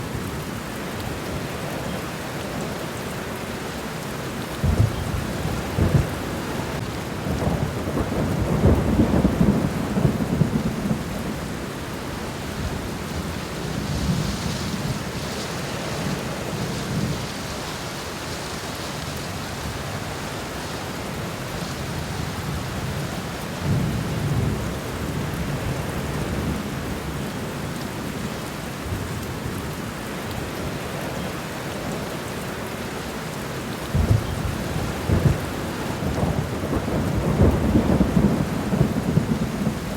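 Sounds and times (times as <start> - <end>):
rain on ground and leaves: 0.0 - 39.9
thunder rumbling: 4.6 - 11.6, 33.9 - 39.9.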